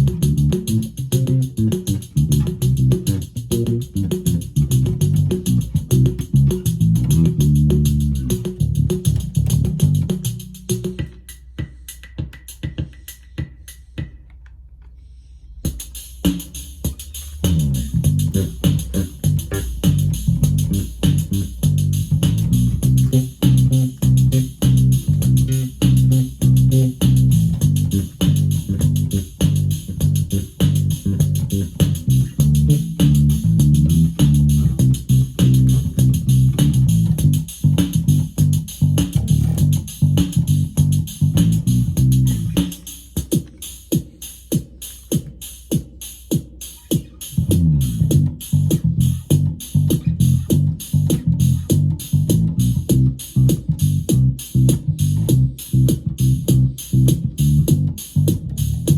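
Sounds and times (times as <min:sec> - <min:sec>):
low amp hum: 0:00.0 - 0:10.6, 0:17.3 - 0:42.6
bass guitar notes: 0:00.0 - 0:10.9, 0:17.3 - 0:42.6, 0:47.4 - 0:58.9
drum machine beat: 0:00.0 - 0:14.5, 0:15.6 - 0:58.9.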